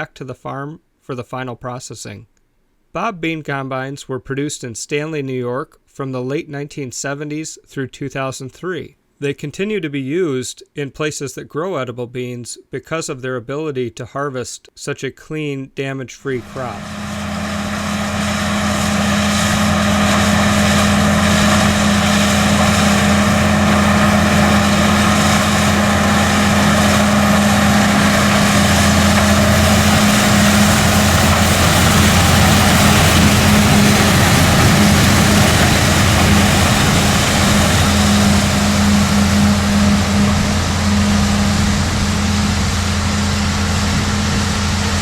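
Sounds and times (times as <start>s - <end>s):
tractor and combine running: 16.4s - 45.0s.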